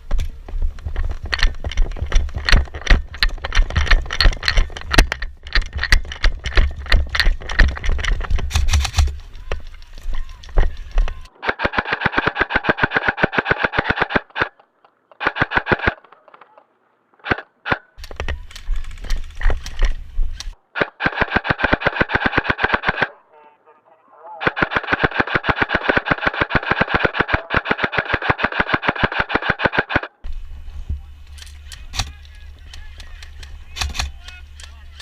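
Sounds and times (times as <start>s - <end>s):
airsoft rifle firing rapid clicks: 1.2s - 9.6s, 10.2s - 14.6s, 15.2s - 16.2s, 17.2s - 23.1s, 24.4s - 30.3s, 31.3s - 35.0s
low rumbling from handling: 30.3s - 35.0s.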